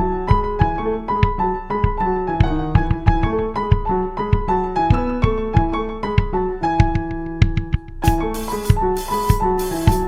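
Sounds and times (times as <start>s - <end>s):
keyboard melody: 0.0s - 10.0s
drum kit beat: 7.4s - 10.0s.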